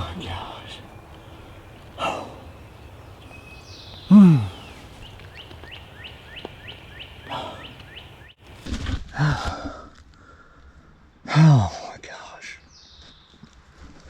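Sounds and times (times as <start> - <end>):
songbird chirping: 0.0 - 8.5, 12.1 - 13.6
man groaning: 4.1 - 4.6.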